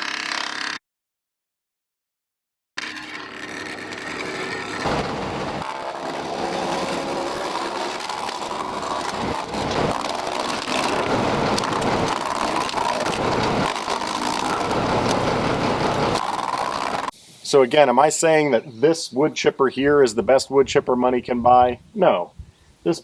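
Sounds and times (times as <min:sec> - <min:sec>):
machine running hum: 0:02.8 - 0:17.1
wood chipper shredding branches: 0:02.8 - 0:17.1.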